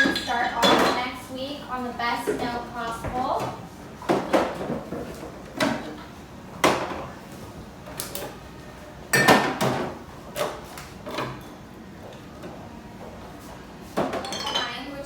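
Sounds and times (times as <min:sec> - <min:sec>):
bottles and containers clunking: 0:00.0 - 0:01.1, 0:14.0 - 0:15.0.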